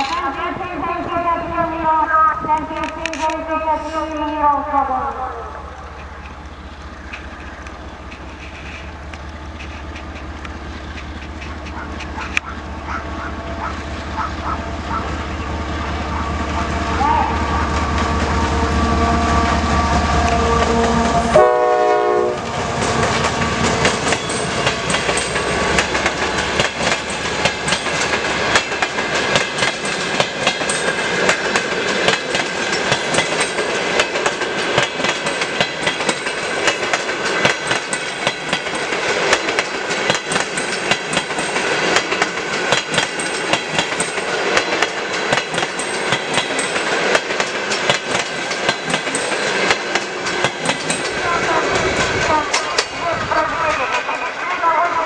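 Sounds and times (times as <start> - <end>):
diesel locomotive engine rumble: 0.0 - 55.0
train wheels clicking over rail joints: 2.5 - 4.7, 5.7 - 16.9, 17.6 - 54.5
train horn: 16.0 - 23.6.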